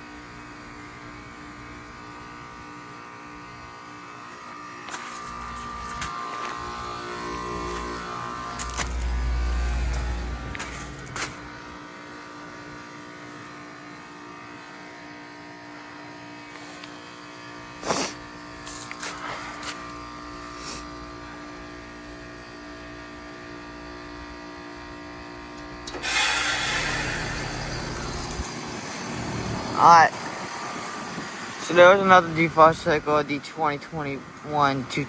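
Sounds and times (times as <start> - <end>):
heat pump compressor humming: 0.0 - 35.0
loud whoosh of refrigerant: 5.4 - 12.0, 25.8 - 33.2.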